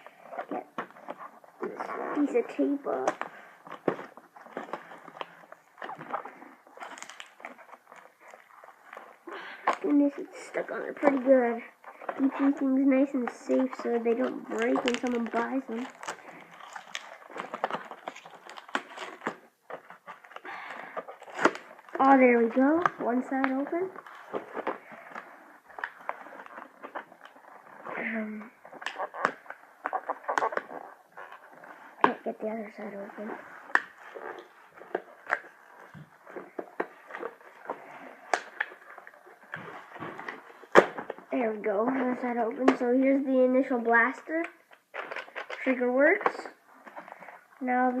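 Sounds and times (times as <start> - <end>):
plastic and cardboard crinkling: 0.0 - 48.0
packaging snapping: 0.4 - 10.5, 14.2 - 27.5.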